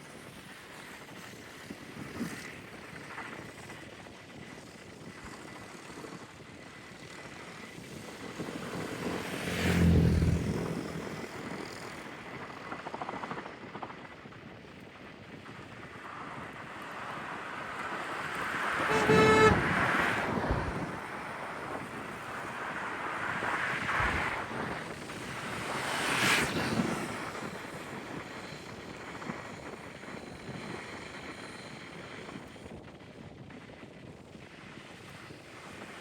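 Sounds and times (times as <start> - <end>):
wind on microphone: 10.4 - 36.0
short horn toot: 18.7 - 21.0.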